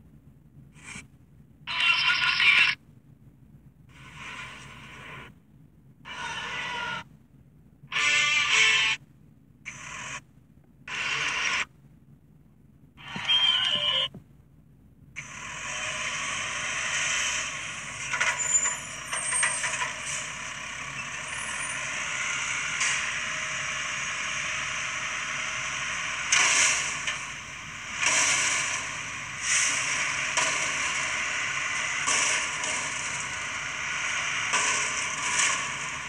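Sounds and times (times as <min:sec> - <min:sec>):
garbage truck working: 0:15.2 - 0:36.0.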